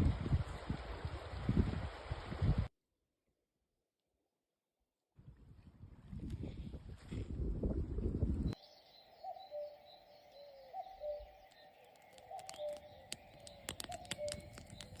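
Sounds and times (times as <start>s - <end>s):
small birds chirping: 8.6s - 15.0s.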